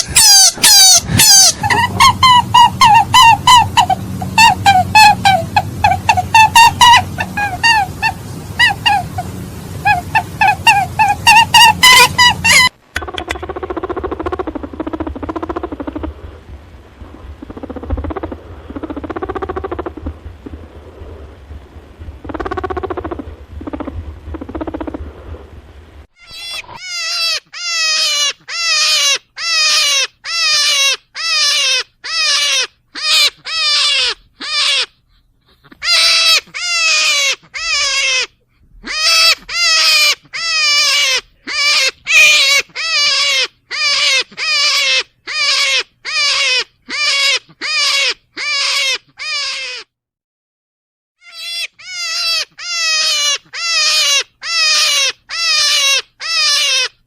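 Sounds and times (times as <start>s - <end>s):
rabbit screaming: 0.0s - 16.0s, 26.2s - 35.0s, 35.7s - 49.9s, 51.2s - 57.0s
steady hum: 0.0s - 26.8s
muffled low animal sounds: 12.6s - 26.8s.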